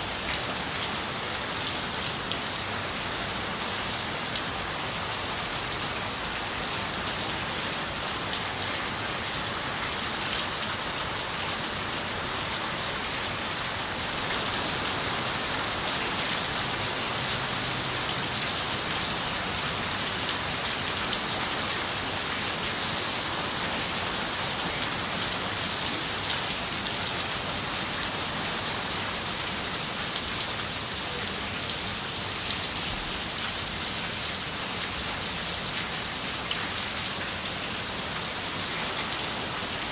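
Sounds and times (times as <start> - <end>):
rain on a window: 14.0 - 39.9.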